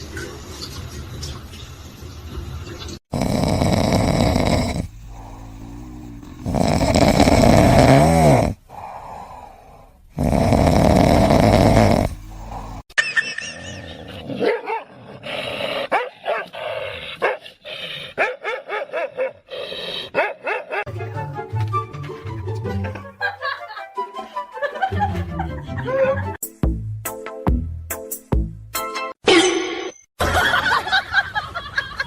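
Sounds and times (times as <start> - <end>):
dog growling: 3.1 - 8.6, 10.2 - 12.8, 14.0 - 18.2.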